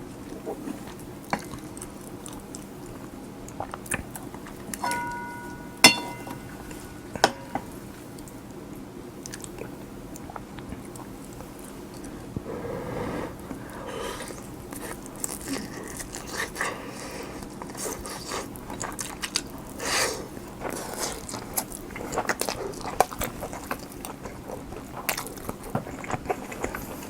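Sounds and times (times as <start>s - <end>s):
metal spoon clinking on dish: 4.8s - 7.7s
close chewing: 13.6s - 27.0s.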